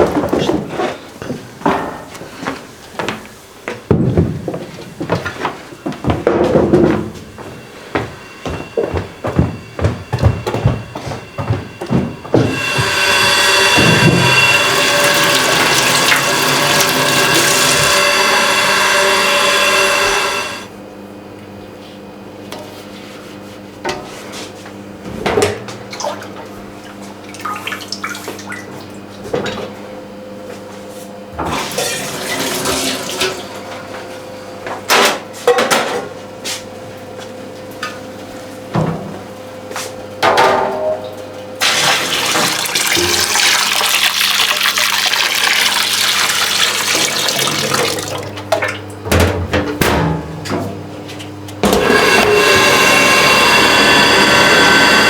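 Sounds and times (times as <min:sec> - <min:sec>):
water running: 0:12.4 - 0:20.7, 0:31.5 - 0:33.6, 0:41.6 - 0:48.9.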